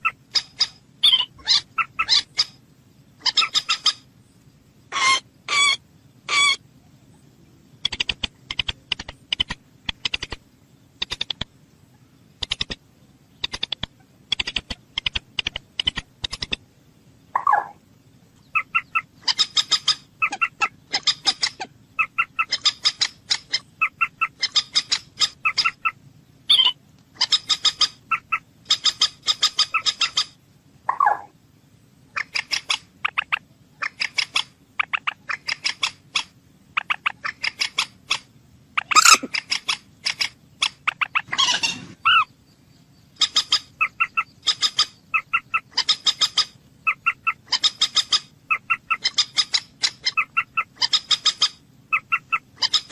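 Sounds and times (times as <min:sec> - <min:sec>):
low drawn-out bird calls: 0:00.0 - 0:52.9
bird clicking chatter: 0:07.8 - 0:10.4, 0:11.0 - 0:11.6, 0:12.4 - 0:12.8, 0:13.4 - 0:16.6, 0:18.6 - 0:30.3, 0:32.2 - 0:41.8.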